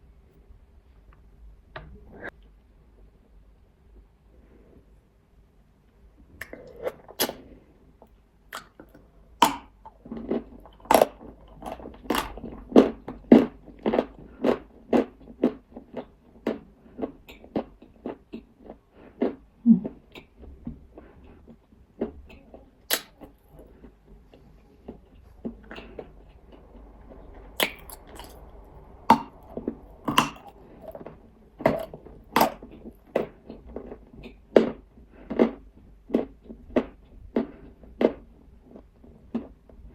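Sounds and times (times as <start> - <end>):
person chewing crunchy clay: 8.5 - 39.7.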